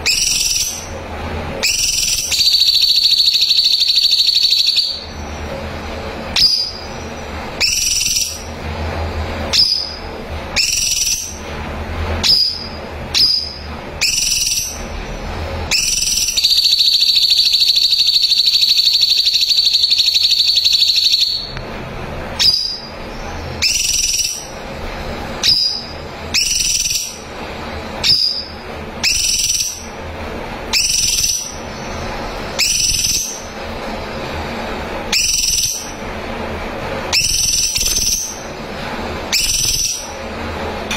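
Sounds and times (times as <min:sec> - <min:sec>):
bird fast trill: 0:00.0 - 0:01.0, 0:01.6 - 0:05.4, 0:06.4 - 0:08.6, 0:09.5 - 0:11.4, 0:12.2 - 0:14.9, 0:15.7 - 0:21.5, 0:22.4 - 0:24.6, 0:25.4 - 0:27.3, 0:28.0 - 0:30.0, 0:30.7 - 0:33.6, 0:35.1 - 0:36.0, 0:37.1 - 0:38.5, 0:39.3 - 0:40.2.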